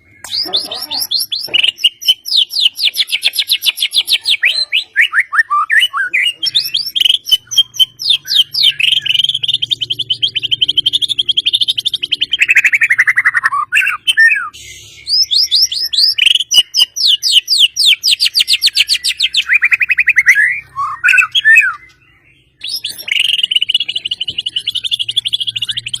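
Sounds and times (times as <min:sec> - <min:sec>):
songbird singing rapid trills: 0:05.4 - 0:26.0.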